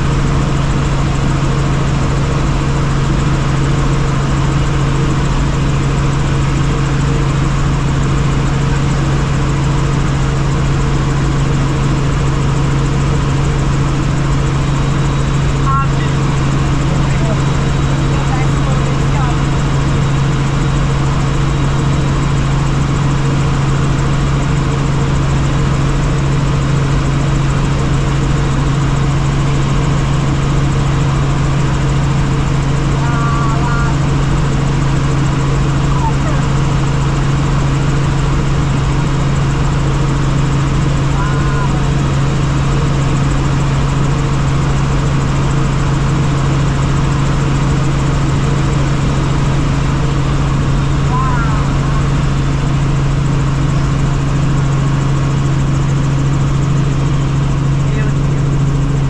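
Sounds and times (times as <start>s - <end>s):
helicopter engine and rotors drone: 0.0s - 59.0s
low hum: 0.0s - 59.0s.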